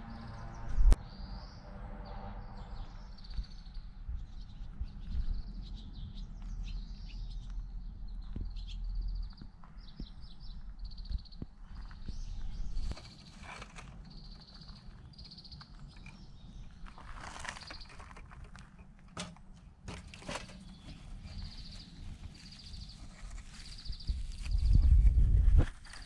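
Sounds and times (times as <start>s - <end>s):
steady low rumble: 0.0s - 1.1s, 1.7s - 13.0s
small birds trilling: 2.4s - 18.8s, 20.0s - 25.0s.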